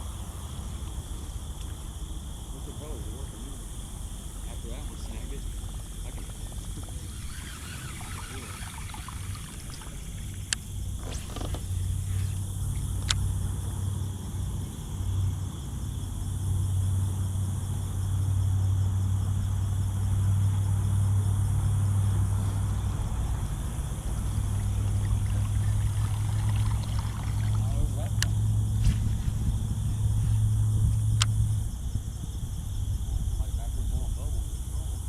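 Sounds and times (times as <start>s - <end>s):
vehicle engine rumble: 0.0s - 35.0s
sharp ticks: 4.2s - 13.4s, 24.1s - 28.4s, 30.9s - 31.4s.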